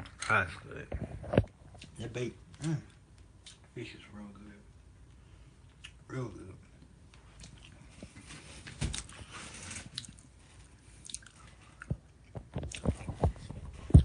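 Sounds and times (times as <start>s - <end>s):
person chewing food: 5.6s - 6.1s, 6.8s - 8.3s, 9.9s - 14.0s.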